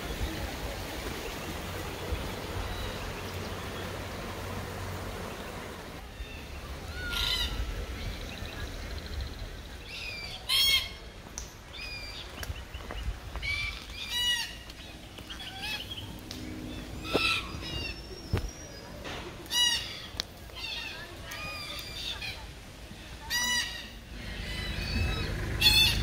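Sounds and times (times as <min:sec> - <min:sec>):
bird calling harshly: 0:16.8 - 0:18.8, 0:19.5 - 0:22.4, 0:23.2 - 0:26.0.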